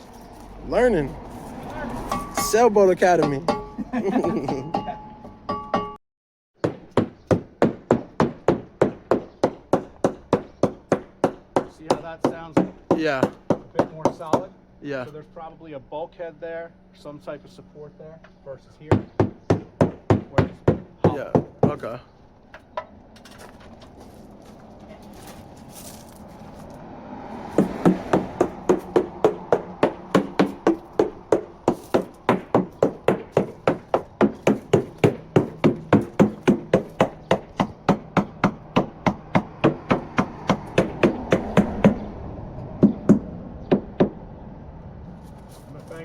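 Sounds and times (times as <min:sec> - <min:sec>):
hammer tapping on fiberglass hull: 0:06.6 - 0:14.5, 0:18.8 - 0:21.8, 0:27.6 - 0:42.0.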